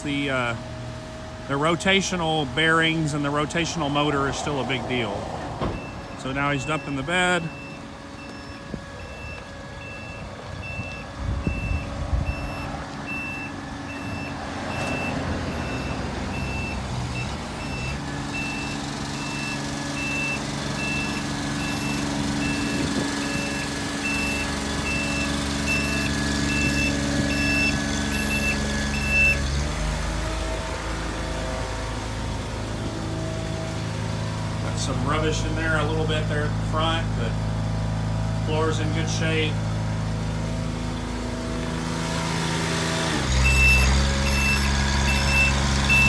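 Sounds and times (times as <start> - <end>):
truck warning beeper: 0.0 - 30.2, 43.1 - 46.0
truck engine running: 0.0 - 46.0.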